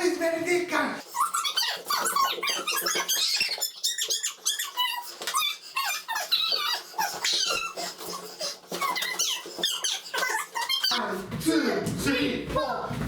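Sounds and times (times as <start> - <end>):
rubber balloons squeaking: 1.0 - 11.1.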